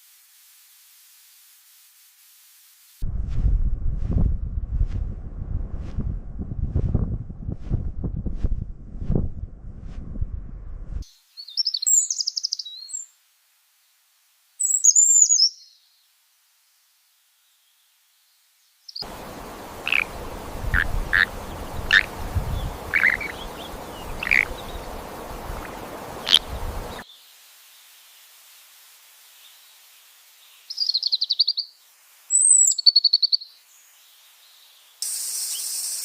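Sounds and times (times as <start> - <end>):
low rumble: 3.0 - 11.0
short bird chirps: 11.1 - 13.1, 30.7 - 33.6
high-pitched bird calls: 19.3 - 27.0.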